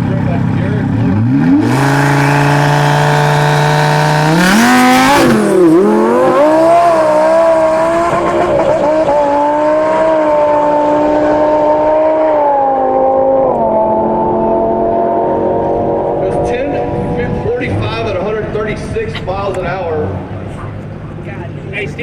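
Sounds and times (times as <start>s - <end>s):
sports car engine revving: 0.0s - 21.3s
tire squeal: 1.6s - 3.2s.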